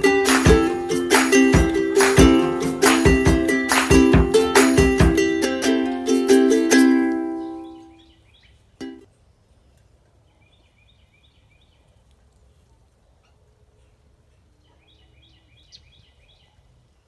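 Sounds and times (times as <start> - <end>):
plucked music note: 0.0 - 7.9
small bird chirping: 7.4 - 8.7.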